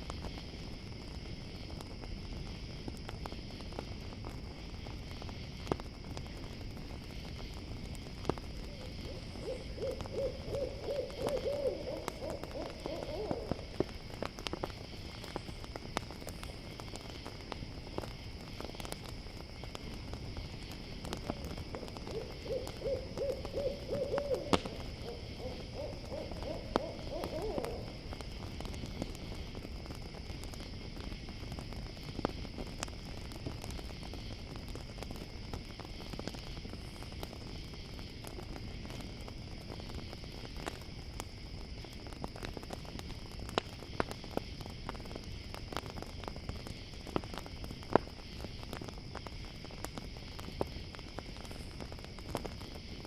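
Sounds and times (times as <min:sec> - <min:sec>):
campfire crackling: 0:00.0 - 0:53.0
cricket chorus: 0:00.0 - 0:53.0
owl trilling hoots: 0:08.7 - 0:13.7, 0:21.8 - 0:28.0.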